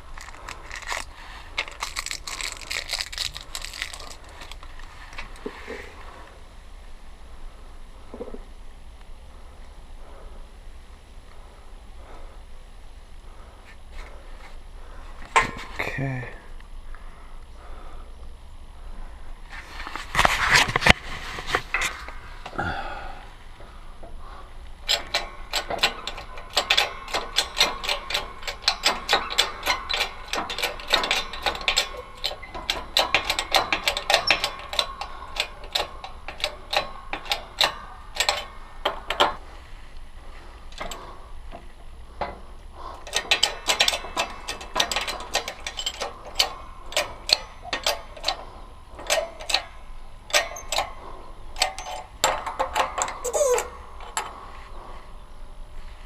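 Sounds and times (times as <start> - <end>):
sharp metal clicks: 0.0 - 5.5, 23.6 - 39.5, 40.6 - 54.8.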